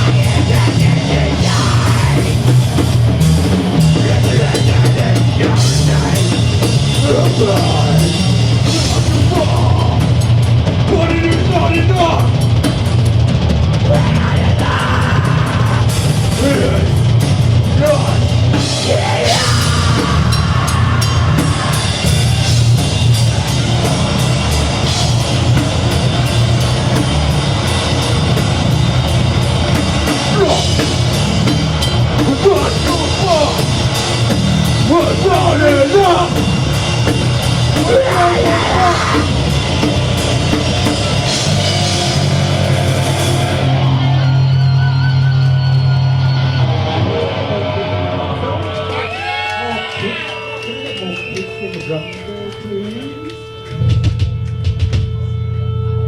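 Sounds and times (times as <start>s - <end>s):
harsh vocals: 0.0s - 12.6s, 13.7s - 25.6s, 29.1s - 43.9s
very fast drumming: 0.0s - 44.6s
distorted guitars and bass: 0.0s - 56.0s.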